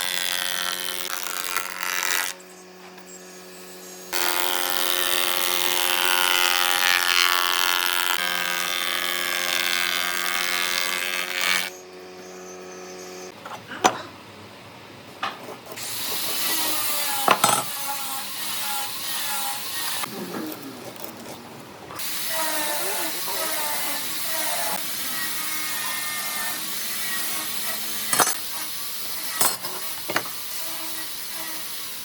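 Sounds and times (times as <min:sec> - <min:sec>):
power tool cutting wood: 0:00.0 - 0:02.4, 0:03.8 - 0:11.8, 0:15.8 - 0:20.5, 0:22.0 - 0:32.0.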